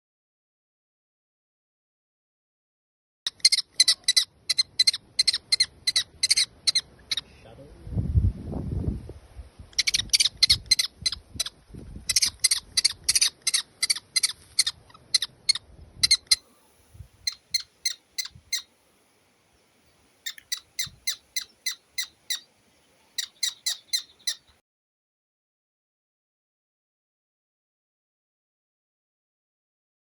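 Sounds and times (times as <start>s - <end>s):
bird calling sharp high notes: 16.2s - 18.9s, 19.6s - 24.6s.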